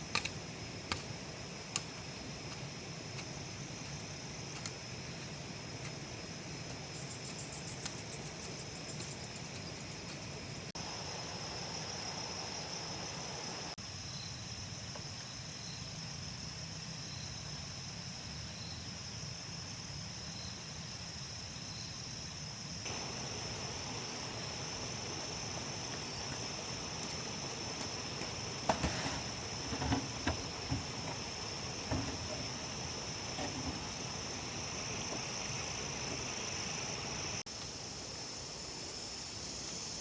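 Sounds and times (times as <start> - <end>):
insects chirring: 0.0 - 40.0
knocks and thuds: 29.7 - 32.6.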